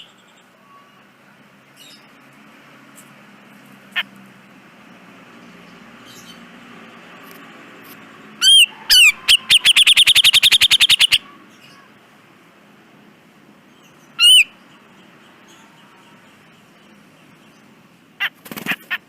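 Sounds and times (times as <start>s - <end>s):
bird call notes: 8.4s - 11.9s, 14.1s - 16.7s
bird rattling run of notes: 18.2s - 19.0s.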